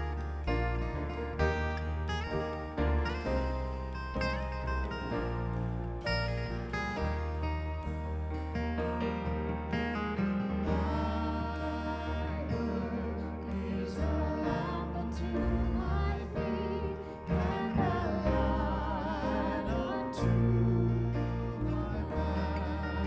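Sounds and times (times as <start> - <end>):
instrumental accompaniment: 0.0 - 23.0
person singing with vibrato: 10.6 - 23.0.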